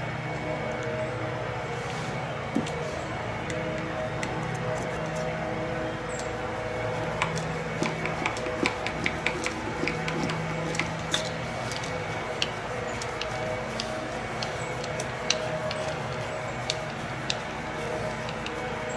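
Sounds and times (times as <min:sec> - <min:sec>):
small wooden parts clicking: 0:07.2 - 0:18.6.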